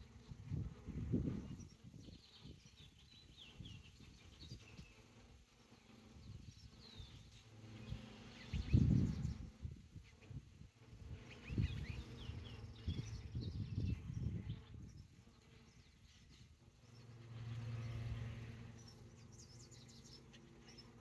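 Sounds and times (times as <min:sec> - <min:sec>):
wind rumble on microphone: 0:00.0 - 0:21.0
birds chirping: 0:01.2 - 0:10.4, 0:11.0 - 0:21.0
bee swarm humming: 0:10.8 - 0:21.0.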